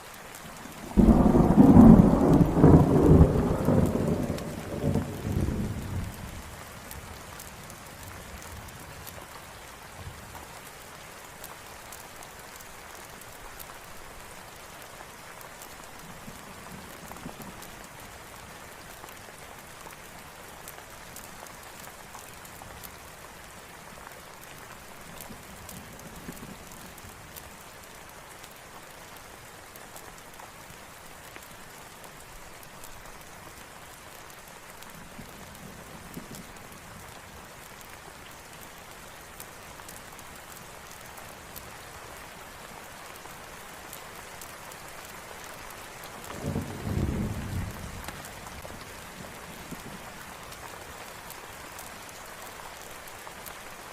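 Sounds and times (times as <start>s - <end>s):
steady rain falling: 0.0s - 53.9s
low thunder rumble: 0.9s - 6.4s, 46.4s - 48.3s.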